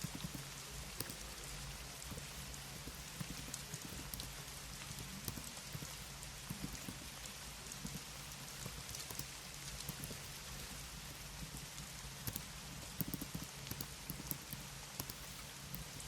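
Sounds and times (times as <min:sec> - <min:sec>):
keyboard key clicks: 0:00.0 - 0:04.4, 0:12.3 - 0:16.0.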